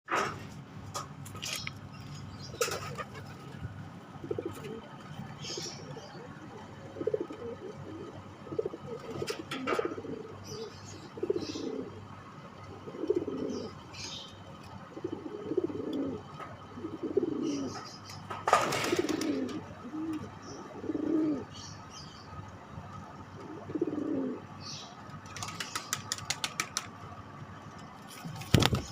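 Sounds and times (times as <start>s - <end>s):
pigeon cooing: 4.2s - 12.1s, 12.7s - 13.8s, 14.9s - 17.9s, 18.8s - 21.7s, 23.4s - 24.8s.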